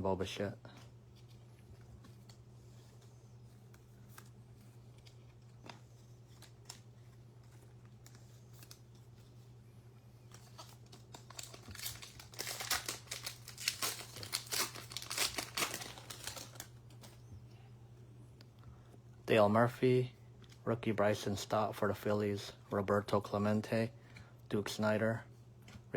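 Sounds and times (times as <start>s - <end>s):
low steady hum: 0.0s - 25.9s
wrapper crinkling: 10.3s - 17.2s.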